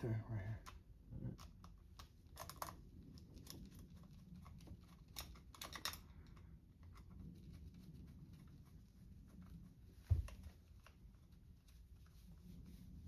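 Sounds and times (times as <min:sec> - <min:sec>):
small metal parts clicking: 0:04.4 - 0:06.4.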